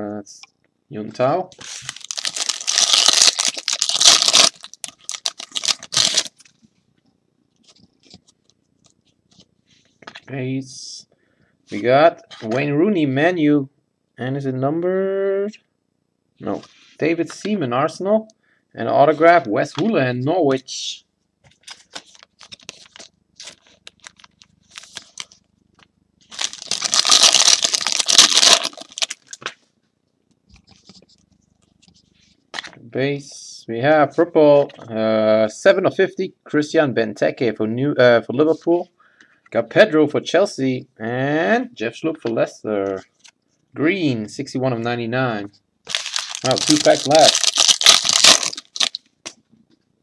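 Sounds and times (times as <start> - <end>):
card pack wrapper tearing and crinkling: 1.6 - 6.5, 21.6 - 25.4, 26.3 - 29.5, 45.9 - 49.0.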